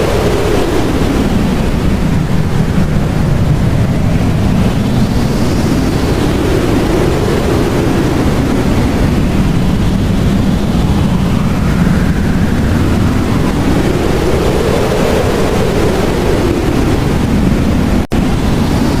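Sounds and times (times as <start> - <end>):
blizzard wind roaring: 0.0 - 19.0
whistling wind gusts: 0.0 - 19.0.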